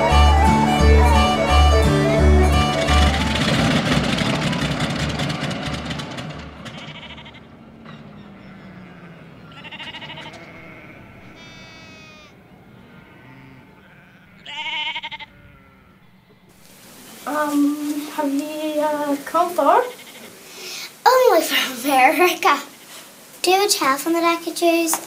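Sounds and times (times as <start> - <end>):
rushing noise: 0.0 - 8.4
sheep bleating: 6.7 - 16.5, 19.8 - 20.4.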